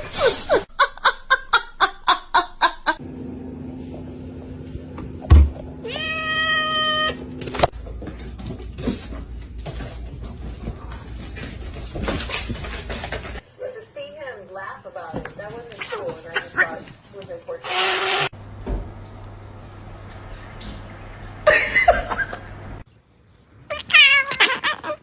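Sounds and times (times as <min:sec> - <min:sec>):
cat meowing: 0:05.8 - 0:07.2, 0:23.7 - 0:25.0.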